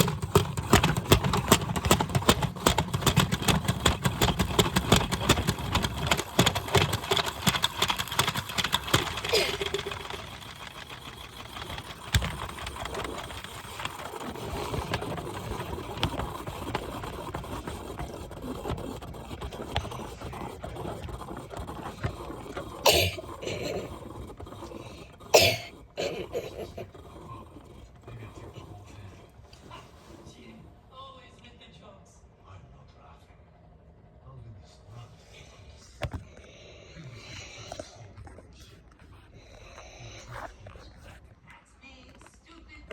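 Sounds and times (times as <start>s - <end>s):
washing machine running: 0.0s - 30.8s.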